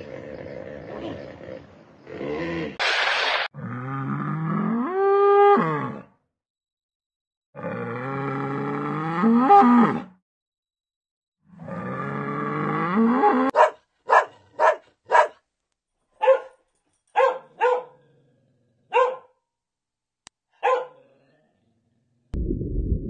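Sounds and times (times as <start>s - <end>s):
dog barking: 13.5s - 15.4s, 16.2s - 18.0s, 18.9s - 19.4s, 20.6s - 21.0s.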